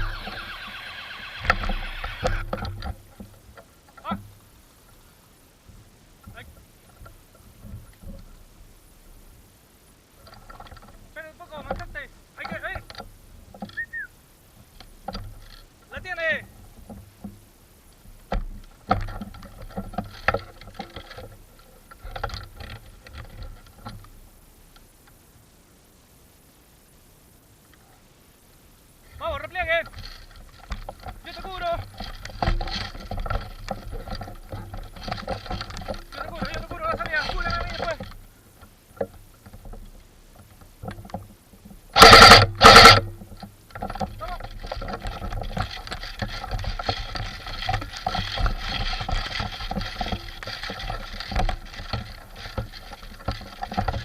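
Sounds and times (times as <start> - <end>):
rustling near microphone: 0.0 - 54.0
handling clicks and knocks: 14.6 - 24.2, 29.1 - 54.0
airsoft gun full-auto bursts: 42.0 - 43.0.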